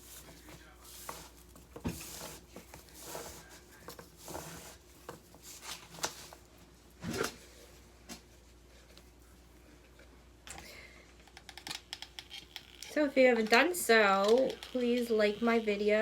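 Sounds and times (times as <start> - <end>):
rustling of craft materials: 0.0 - 10.1.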